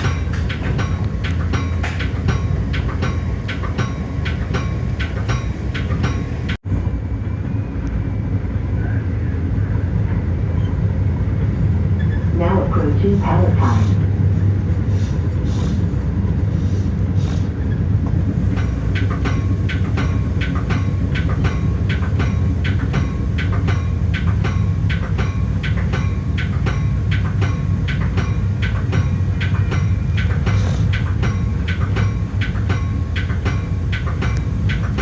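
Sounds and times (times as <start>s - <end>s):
metallic clicking: 0.0s - 6.6s, 18.3s - 35.0s
train rumble and hum: 0.0s - 35.0s.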